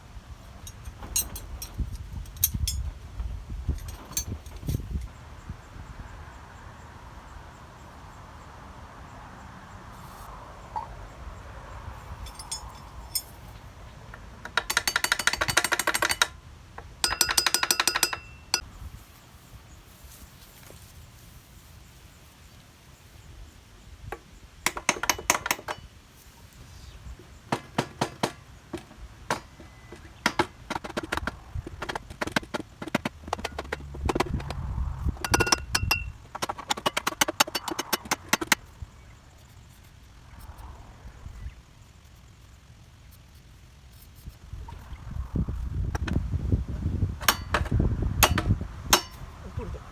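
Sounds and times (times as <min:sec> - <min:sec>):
tools knocking on metal: 0:00.7 - 0:02.8, 0:14.4 - 0:16.3, 0:17.0 - 0:18.6, 0:24.7 - 0:25.9, 0:27.5 - 0:34.6, 0:35.2 - 0:38.6, 0:47.2 - 0:49.2
ratchet wrench clicking: 0:14.5 - 0:16.4, 0:17.0 - 0:18.6.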